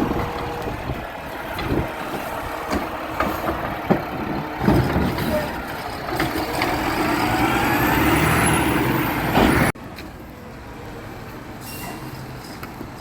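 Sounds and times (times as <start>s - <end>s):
truck engine whining: 0.0s - 9.8s
low engine rumble: 0.0s - 10.5s.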